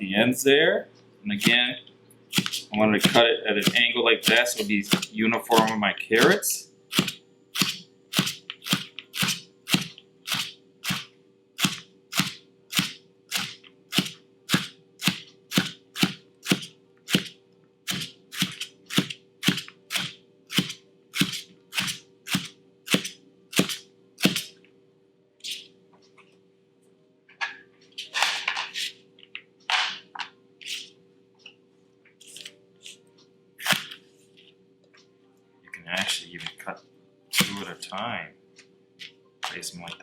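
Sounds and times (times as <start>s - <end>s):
faint steady hum: 0.0s - 40.0s
knife chopping on cutting board: 2.3s - 6.4s.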